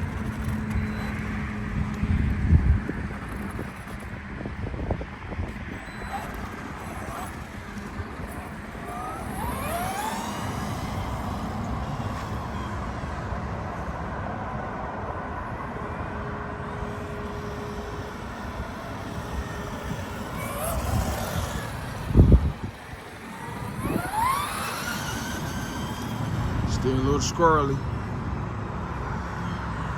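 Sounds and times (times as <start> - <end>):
motor vehicle noise: 0.0 - 29.9
short rising whines: 5.4 - 13.3, 15.4 - 28.1.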